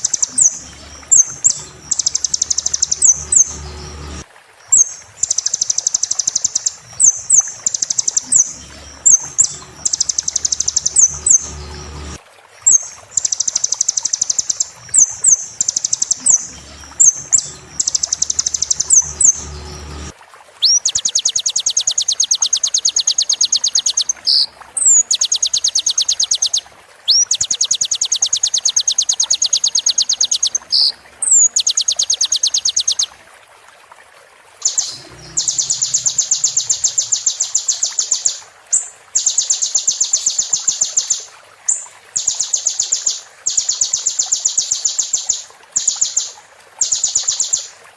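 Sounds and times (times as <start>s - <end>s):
bird song with buzzy trills: 0.0s - 33.1s, 34.6s - 47.7s.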